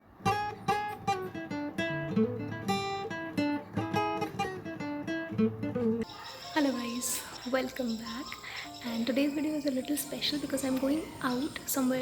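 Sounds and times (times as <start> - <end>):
acoustic guitar picking: 0.1 - 12.0.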